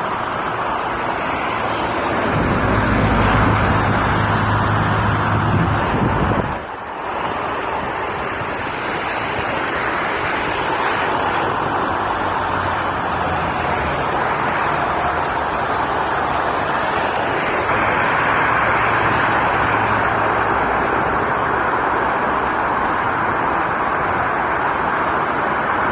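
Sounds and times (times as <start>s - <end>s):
jet engines roaring: 0.0s - 25.9s.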